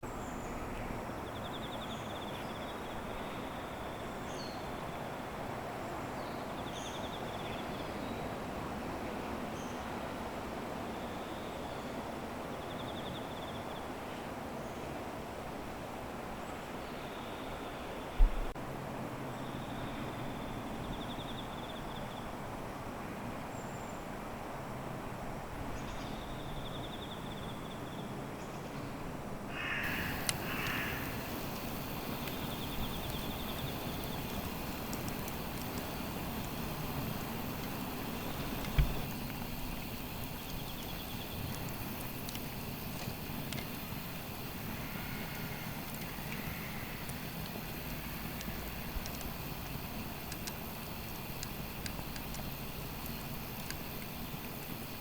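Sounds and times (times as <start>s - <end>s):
outdoor background noise: 0.0s - 55.0s
steady rushing background noise: 29.6s - 55.0s.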